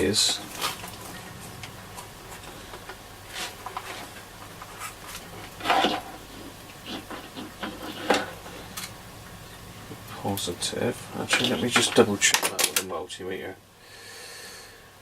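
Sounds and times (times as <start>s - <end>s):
clicks scrapes and knocks: 0.2s - 9.0s, 11.2s - 12.9s.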